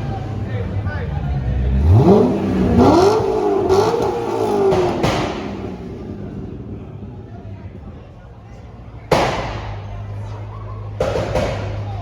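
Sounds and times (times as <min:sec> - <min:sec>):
car engine revving: 0:00.0 - 0:12.0
exhaust pops: 0:01.9 - 0:08.1, 0:09.0 - 0:12.0.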